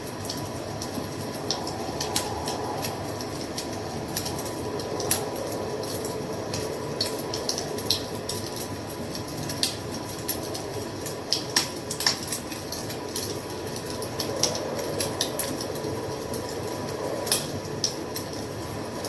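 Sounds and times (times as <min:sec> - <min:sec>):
wood fire crackling: 0:00.1 - 0:19.0
low rush of burning: 0:00.9 - 0:08.5.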